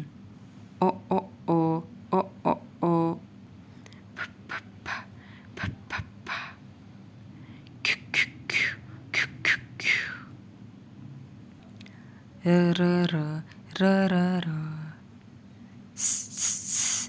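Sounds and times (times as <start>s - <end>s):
person making consonant sounds: 0.8s - 3.2s, 4.1s - 6.6s, 12.4s - 15.0s, 16.0s - 17.0s.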